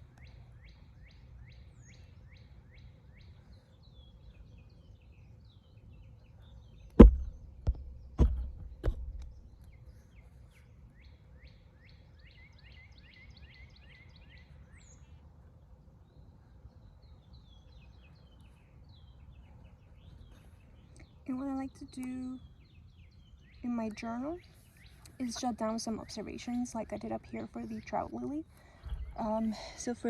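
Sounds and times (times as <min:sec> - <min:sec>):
songbird chirping: 0:00.0 - 0:30.0
sharp knocks: 0:07.0 - 0:09.2
low outdoor rumble: 0:14.1 - 0:30.0.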